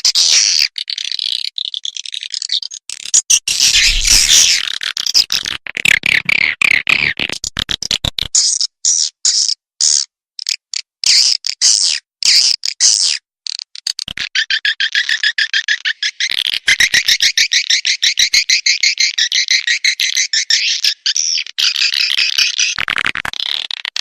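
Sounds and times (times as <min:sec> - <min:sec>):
swiftlet twittering chirps: 0:03.3 - 0:04.6.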